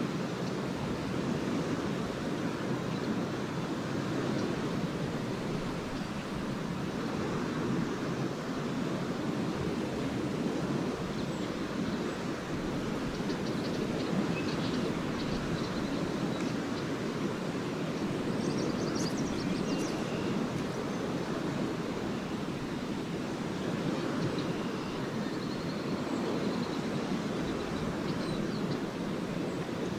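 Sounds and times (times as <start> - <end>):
waves washing onto sand beach: 0.0 - 29.9
wind: 0.0 - 29.9
swallows twittering: 12.9 - 16.9, 17.9 - 20.6.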